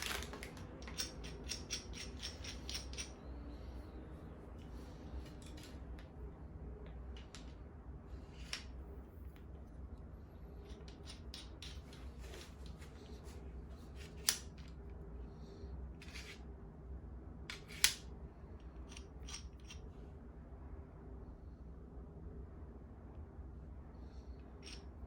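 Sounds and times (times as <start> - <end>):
objects clicking and clinking: 0.0 - 3.2
steady low hum: 0.0 - 25.0.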